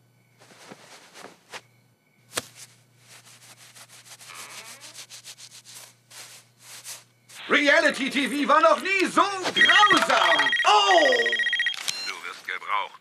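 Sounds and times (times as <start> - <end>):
scratchy rubbing and rustling: 0.4 - 1.7, 2.3 - 7.4.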